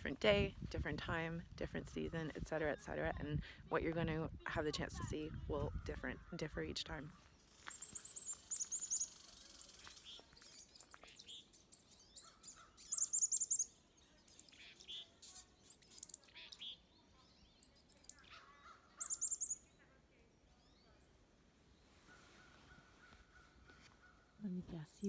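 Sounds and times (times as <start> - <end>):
lower coarse bird calls: 5.4 - 19.8
very high bird chirps: 7.3 - 19.8.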